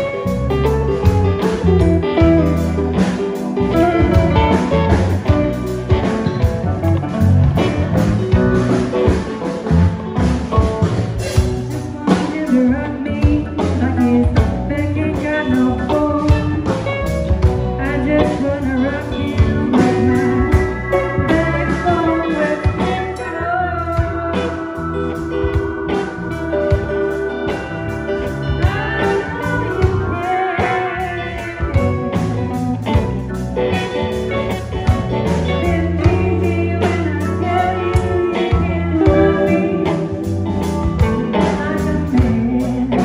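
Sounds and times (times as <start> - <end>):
guitar: 0.0 - 43.0
live blues band playing: 0.0 - 43.0.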